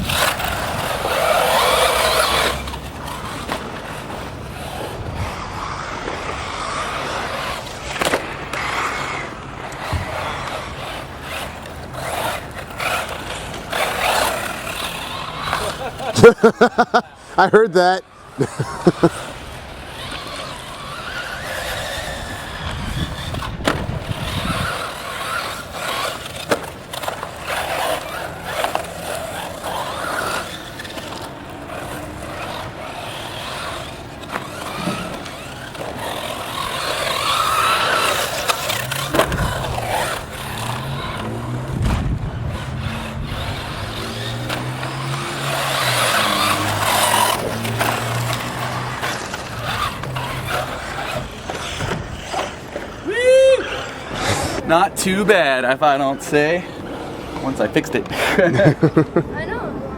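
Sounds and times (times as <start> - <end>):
tyres rushing on loose dirt: 0.0 - 59.6
electric motor whine: 18.2 - 52.8
knocks from landings: 34.5 - 52.6.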